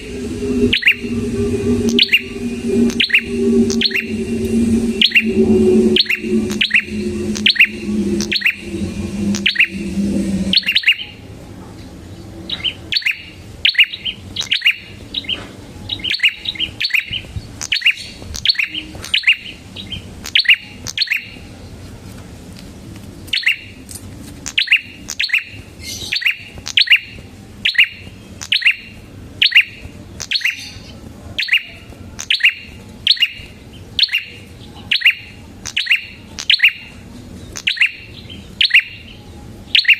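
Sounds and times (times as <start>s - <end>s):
low hum: 0.0s - 13.6s.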